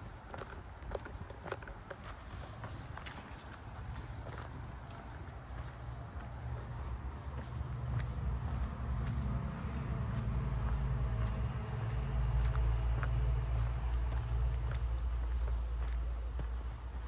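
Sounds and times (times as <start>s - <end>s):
steady low rumble: 3.8s - 17.0s.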